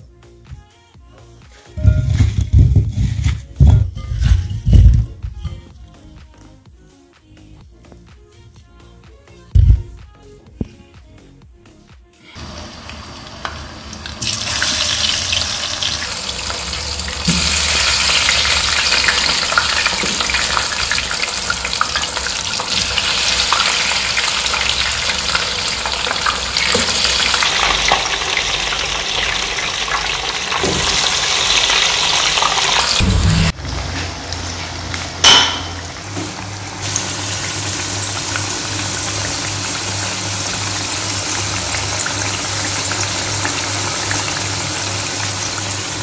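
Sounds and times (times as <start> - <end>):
potato wedges sizzling in oil: 12.4 - 46.0.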